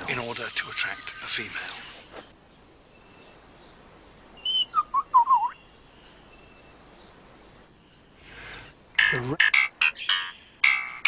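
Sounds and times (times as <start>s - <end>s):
distant bird calls: 0.0s - 11.0s
bird whistled call: 4.4s - 5.6s.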